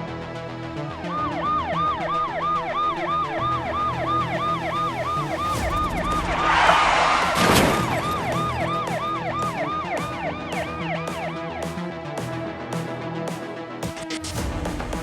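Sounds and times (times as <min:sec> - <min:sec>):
background music: 0:00.0 - 0:15.0
electronic siren wailing: 0:01.0 - 0:11.6
loud rushing noise: 0:05.5 - 0:09.0.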